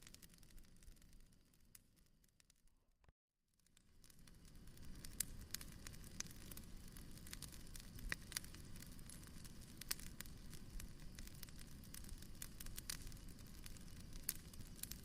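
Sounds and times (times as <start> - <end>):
fireplace crackling: 3.7 - 15.0.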